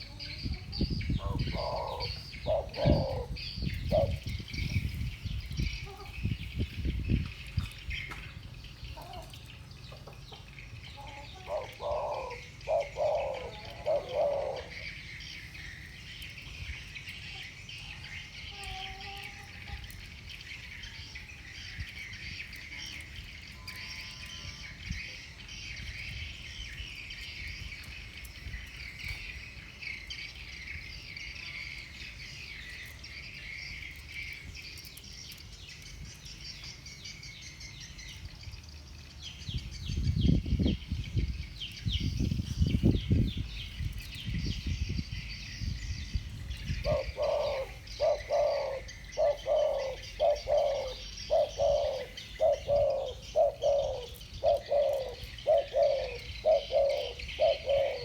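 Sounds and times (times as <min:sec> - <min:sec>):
dove cooing: 0:00.0 - 0:06.4, 0:08.9 - 0:15.8, 0:46.6 - 0:58.0.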